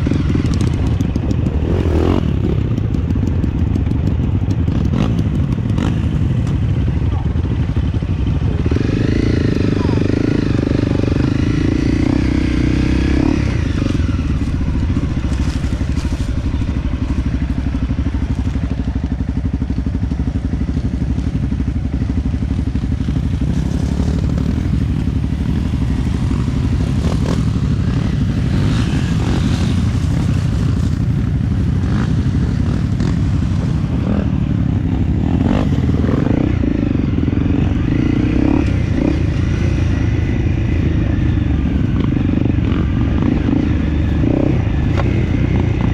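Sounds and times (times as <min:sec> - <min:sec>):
dirt bike engine running: 0:00.0 - 0:45.9
bike clattering over rough ground: 0:14.2 - 0:19.1.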